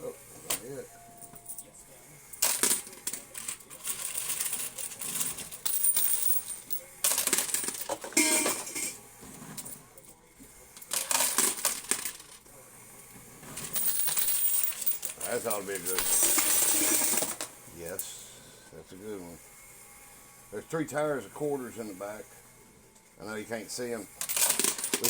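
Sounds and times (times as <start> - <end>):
coins clinking in coin pusher: 0.4 - 1.7, 2.3 - 10.2, 10.8 - 12.4, 13.4 - 18.1, 24.0 - 25.0.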